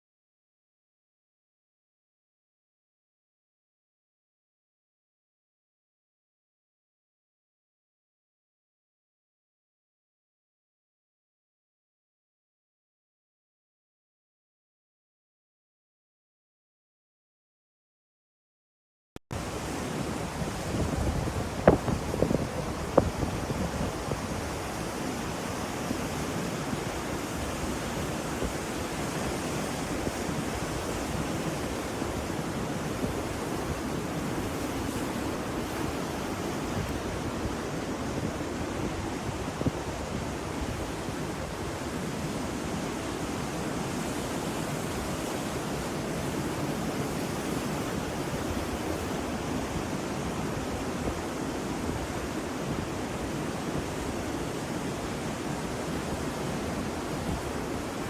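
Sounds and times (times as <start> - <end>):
ocean surf rushing: 19.4 - 58.0.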